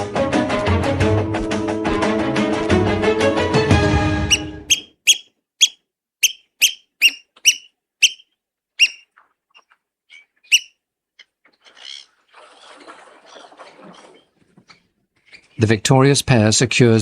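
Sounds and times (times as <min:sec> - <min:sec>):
oystercatchers piping: 0:04.2 - 0:16.0.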